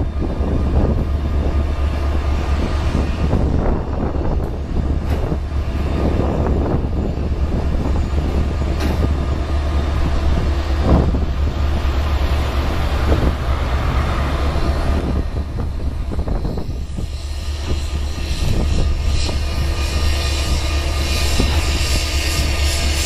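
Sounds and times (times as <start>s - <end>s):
freight train rumbling: 0.0s - 23.0s
sharp clanks from train cars: 0.1s - 23.0s.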